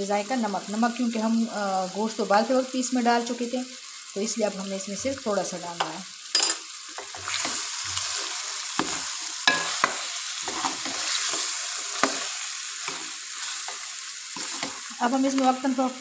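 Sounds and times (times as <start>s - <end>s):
meat and spices sizzling in oil: 0.0s - 16.0s
spoon knocking and scraping pan: 5.8s - 15.5s.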